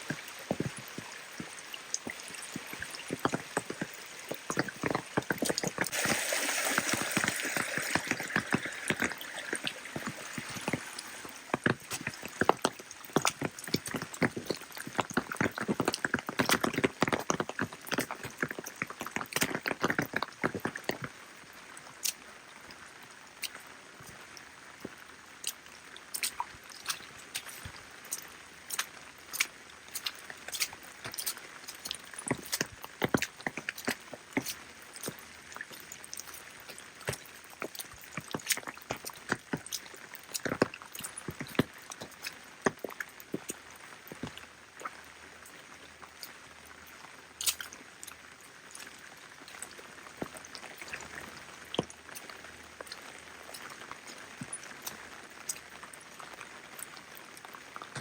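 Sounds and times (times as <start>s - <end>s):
rain pattering: 0.0s - 58.0s
rain hissing: 5.8s - 12.6s.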